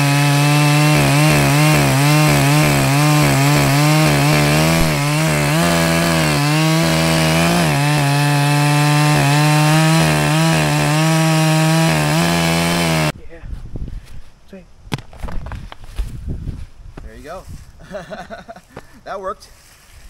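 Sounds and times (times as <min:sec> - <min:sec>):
chainsaw cutting wood: 0:00.0 - 0:13.1.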